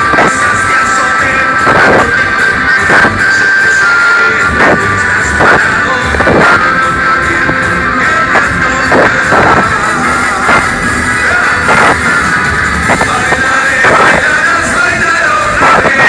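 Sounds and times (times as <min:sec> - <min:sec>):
live band playing loudly: 0:00.0 - 0:16.0.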